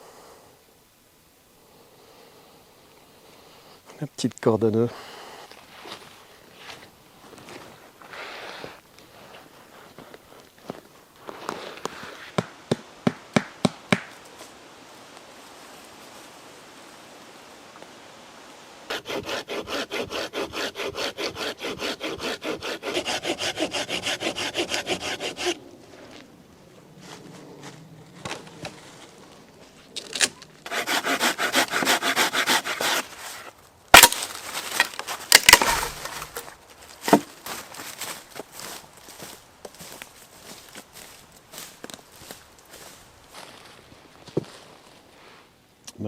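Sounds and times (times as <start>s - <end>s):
hand saw cutting wood: 18.9s - 25.6s, 30.2s - 36.5s
wood cracking and knocking: 33.9s - 37.6s.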